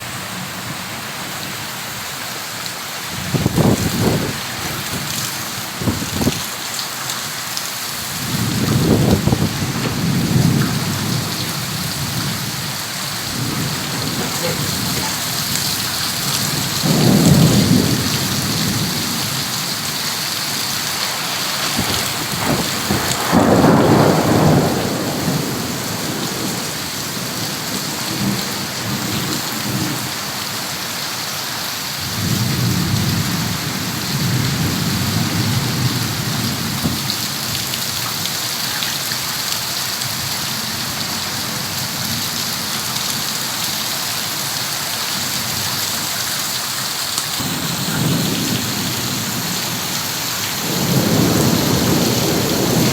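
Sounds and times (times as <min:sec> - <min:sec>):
heavy rain falling: 0:00.0 - 0:52.9
low thunder rumbles: 0:03.1 - 0:06.5, 0:08.0 - 0:30.2, 0:32.0 - 0:37.7, 0:47.4 - 0:52.9.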